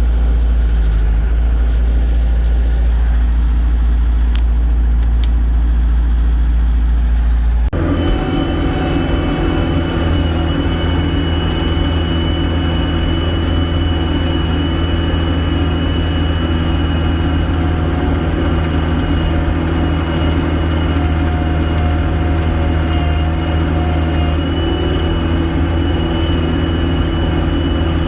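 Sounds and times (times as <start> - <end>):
diesel engine running: 0.0 - 28.0
thin high whine: 7.8 - 28.0.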